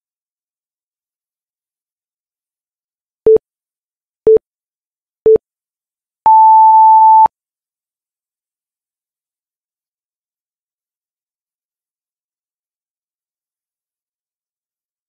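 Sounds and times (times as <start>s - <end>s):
long high timer beep: 6.3s - 7.3s
short low timer beeps: 6.3s - 7.3s.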